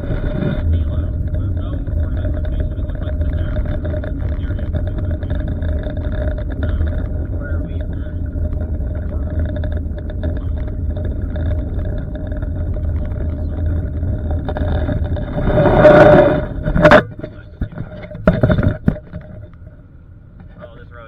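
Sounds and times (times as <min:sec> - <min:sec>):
car road noise rumble: 0:00.0 - 0:21.0.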